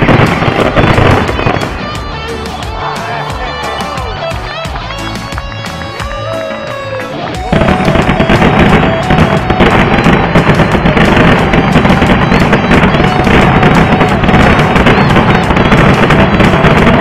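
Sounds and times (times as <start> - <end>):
fireworks barrage: 0.0 - 17.0.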